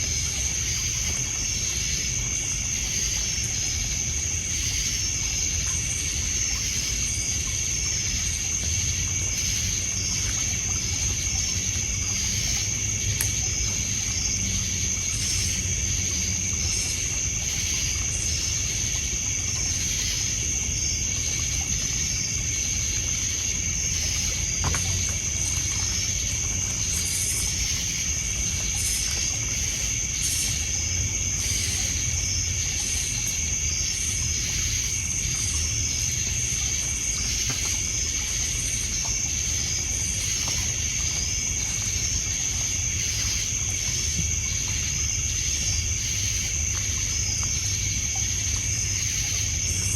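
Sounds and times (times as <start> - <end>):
crickets and insects trilling: 0.0 - 49.9
water lapping on pebble shore: 4.5 - 49.9.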